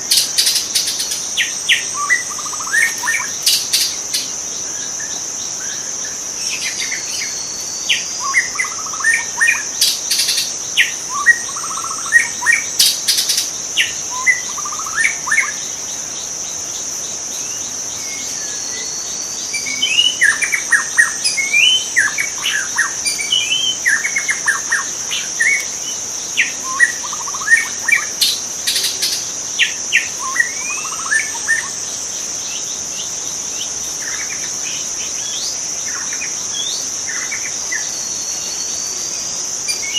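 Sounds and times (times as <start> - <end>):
songbird whistling and chirping: 0.0 - 15.6, 17.4 - 31.8, 32.4 - 39.9
high-pitched insect drone: 0.0 - 39.9.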